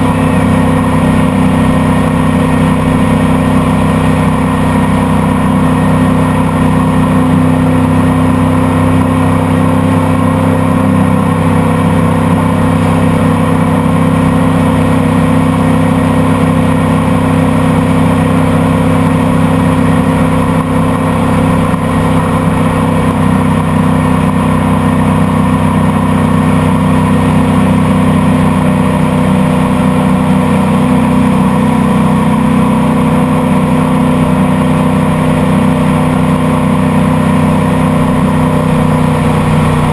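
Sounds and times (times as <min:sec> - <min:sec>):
boat engine droning: 0:00.0 - 0:39.9
rushing water noise: 0:27.6 - 0:39.9.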